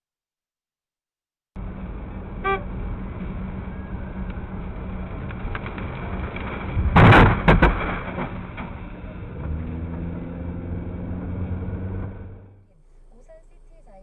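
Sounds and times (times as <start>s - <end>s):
vehicle crash: 1.6s - 12.6s
car engine hum: 1.6s - 14.0s.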